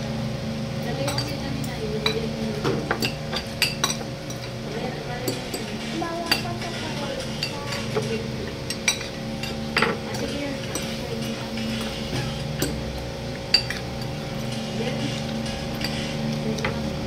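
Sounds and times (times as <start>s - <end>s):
cutlery clinking on dishes: 13.5s - 16.8s.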